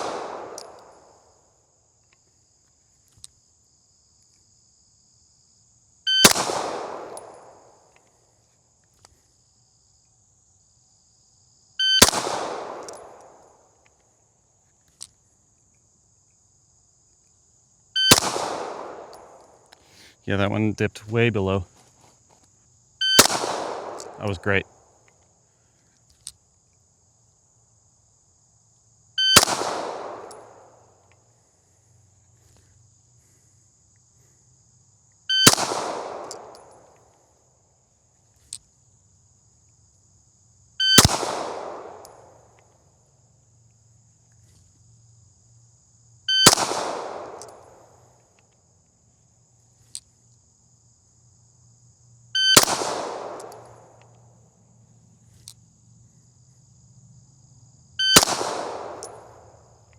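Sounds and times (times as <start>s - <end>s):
pistol shots echoing: 0.0s - 1.0s, 6.2s - 7.6s, 12.0s - 13.4s, 18.1s - 19.4s, 23.2s - 24.6s, 29.3s - 30.6s, 35.4s - 36.7s, 41.0s - 42.1s, 46.4s - 47.7s, 52.6s - 53.8s, 58.2s - 59.4s.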